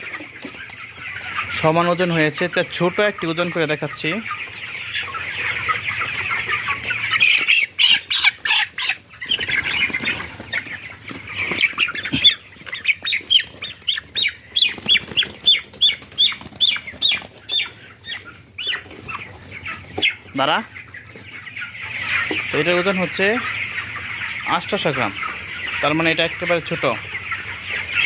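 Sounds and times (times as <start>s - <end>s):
chicks chirping: 0.0s - 28.0s
chicken squawking in alarm: 4.8s - 20.3s
wings flapping: 11.4s - 17.6s.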